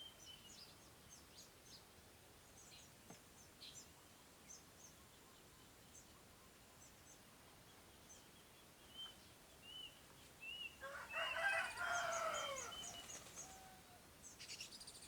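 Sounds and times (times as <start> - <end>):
long loud bird call: 10.8 - 13.8.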